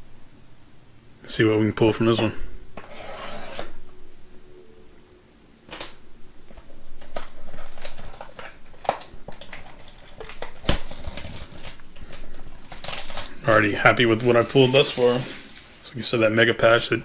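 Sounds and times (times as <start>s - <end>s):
wrapping crinkling: 6.6s - 16.2s.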